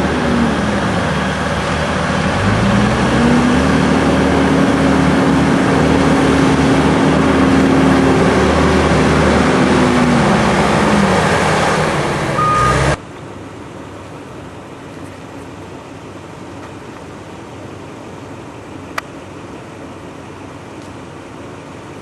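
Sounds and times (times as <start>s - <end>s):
heavy vehicle engine running: 0.0s - 22.0s
brief high beep: 12.4s - 13.0s.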